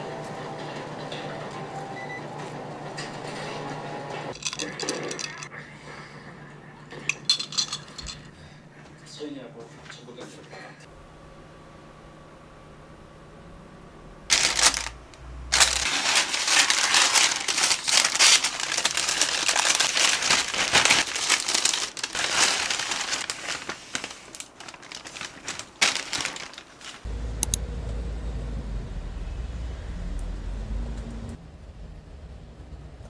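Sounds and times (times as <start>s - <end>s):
packaging crinkling and rustling: 14.3s - 27.1s.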